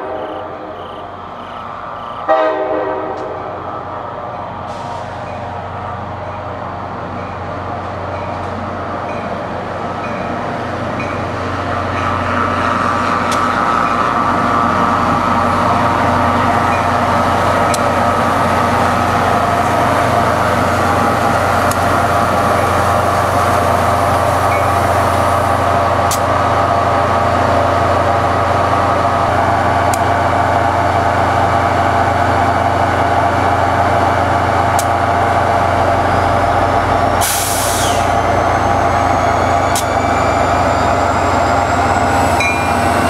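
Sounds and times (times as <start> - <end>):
train locomotive droning: 0.0 - 43.0.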